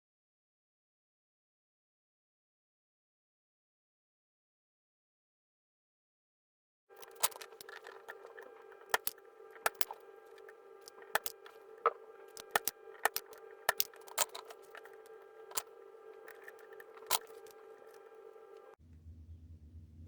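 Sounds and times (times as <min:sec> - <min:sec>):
electrical buzz: 0:06.9 - 0:20.0
sharp clicks: 0:07.0 - 0:18.8.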